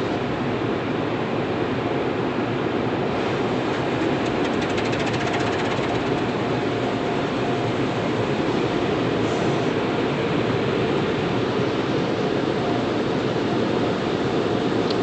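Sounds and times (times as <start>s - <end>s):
car wash water spray: 3.1s - 9.8s
rapid fine ticking: 3.7s - 6.6s.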